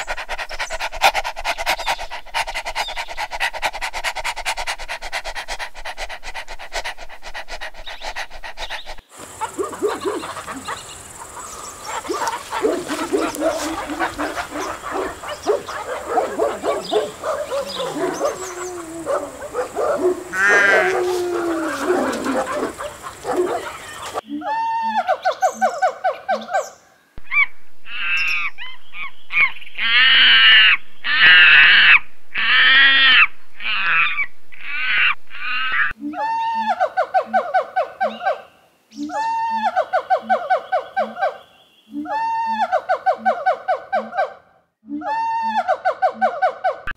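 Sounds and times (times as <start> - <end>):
deer calling: 9.3 - 24.2, 27.2 - 36.0.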